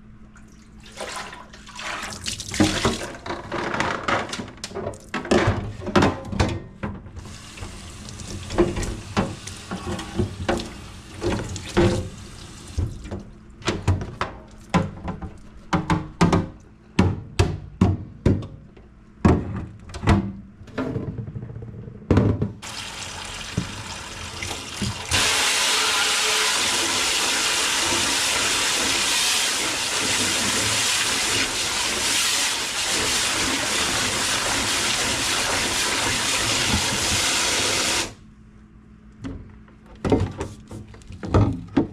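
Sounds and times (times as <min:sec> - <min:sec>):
faucet water running into sink: 0:07.2 - 0:13.0, 0:22.6 - 0:38.1
knocks and clatters of handling: 0:39.2 - 0:41.9.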